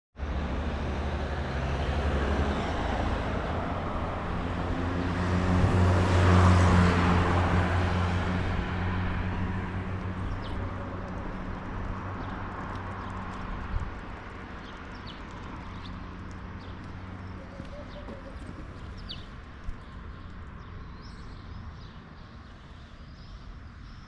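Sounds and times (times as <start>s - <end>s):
vehicle engine passing by: 0.2s - 19.4s.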